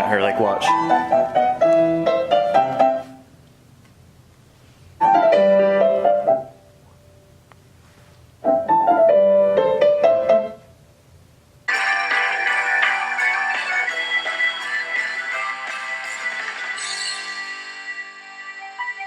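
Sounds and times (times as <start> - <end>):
piano playing classical melody: 0.7 - 3.2, 5.0 - 6.6, 8.4 - 10.6.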